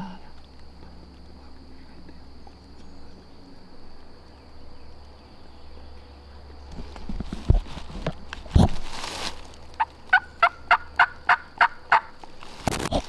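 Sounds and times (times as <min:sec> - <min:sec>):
high-pitched insect drone: 0:00.0 - 0:07.0
faint rustling: 0:06.4 - 0:10.4, 0:12.2 - 0:13.0
wind rumble on microphone: 0:06.6 - 0:09.0.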